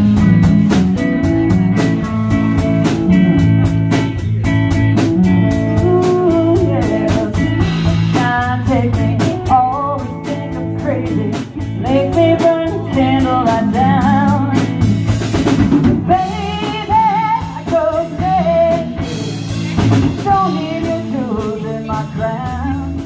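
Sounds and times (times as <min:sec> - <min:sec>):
blues-rock band playing: 0:00.0 - 0:23.0
person singing: 0:05.4 - 0:14.8, 0:16.1 - 0:23.0.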